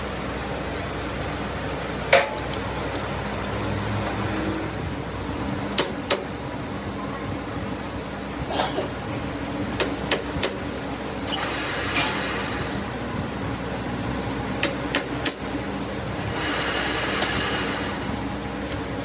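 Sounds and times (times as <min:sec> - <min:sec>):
machine motor humming: 0:11.3 - 0:13.2, 0:16.2 - 0:18.4.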